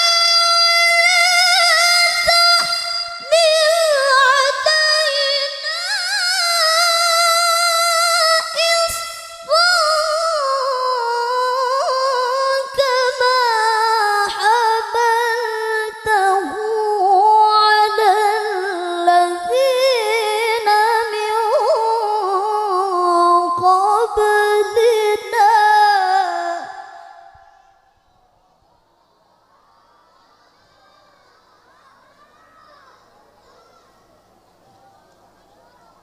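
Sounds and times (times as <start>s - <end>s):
woman chanting melodically: 0.0s - 27.9s.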